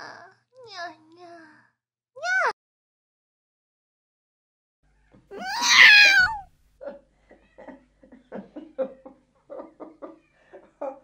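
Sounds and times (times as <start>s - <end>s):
cat meowing: 5.3s - 6.5s.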